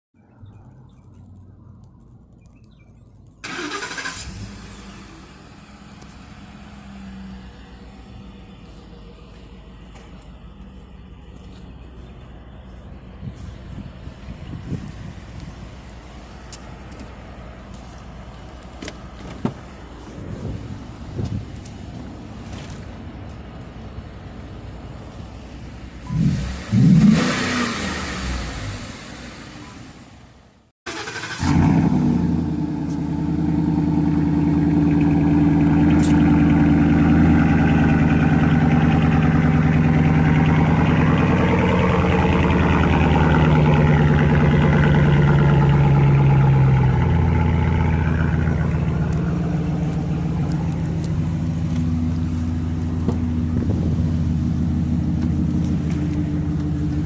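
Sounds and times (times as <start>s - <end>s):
truck engine starting and idling: 3.3s - 57.0s.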